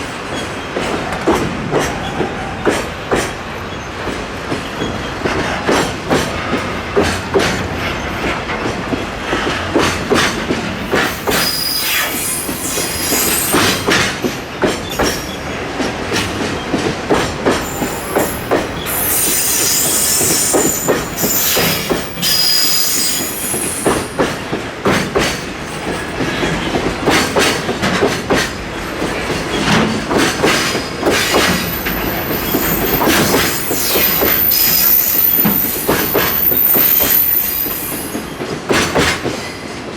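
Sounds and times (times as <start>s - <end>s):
high-pitched wheel squeal: 11.2s - 13.8s, 17.7s - 24.0s, 32.1s - 38.1s
wagon wheels clacking on rail joints: 23.0s - 39.9s.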